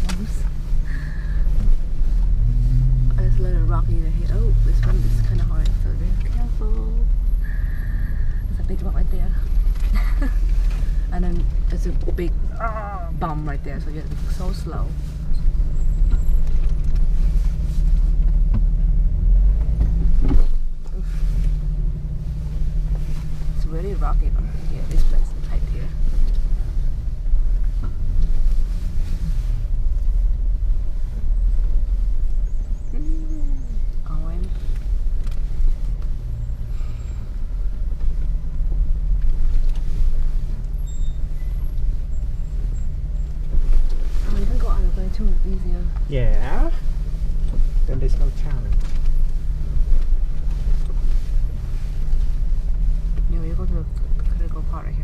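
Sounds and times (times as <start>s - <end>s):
vehicle jolt over bump: 0.0s - 32.8s
vehicle engine at low speed: 0.0s - 55.0s
faint short squeaks: 40.7s - 43.9s.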